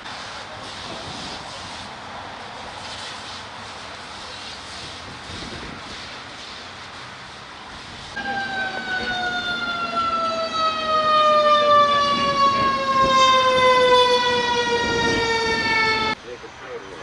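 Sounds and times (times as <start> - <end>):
fire engine siren: 8.1 - 16.2.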